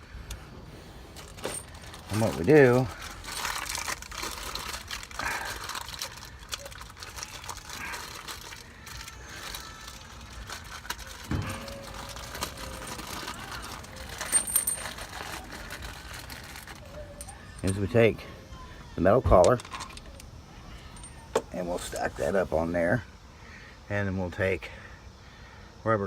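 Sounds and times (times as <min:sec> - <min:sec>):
metal hardware clinking and rattling: 0:01.2 - 0:04.1, 0:10.7 - 0:18.1, 0:19.2 - 0:22.2.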